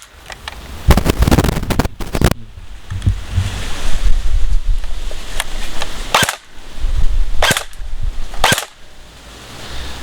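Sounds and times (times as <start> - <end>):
wind buffeting microphone: 0.6 - 9.0.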